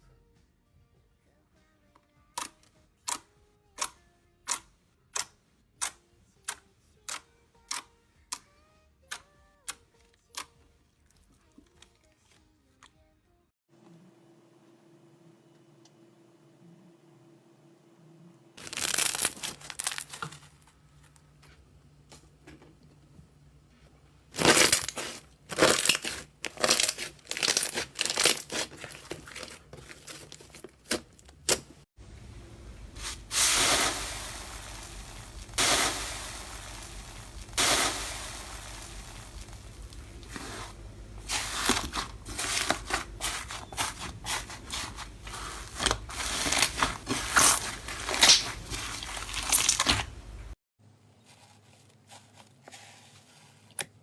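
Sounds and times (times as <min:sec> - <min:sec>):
slime crackling and popping: 0:18.6 - 0:20.1, 0:24.4 - 0:29.6, 0:33.3 - 0:40.6, 0:41.2 - 0:50.2.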